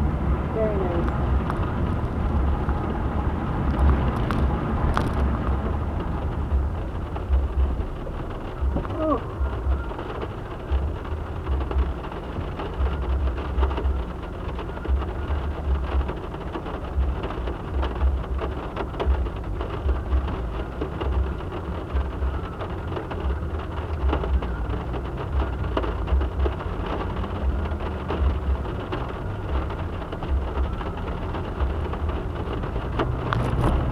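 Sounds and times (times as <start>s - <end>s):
low thumps: 0.0s - 14.2s
steady rain falling: 0.0s - 33.9s.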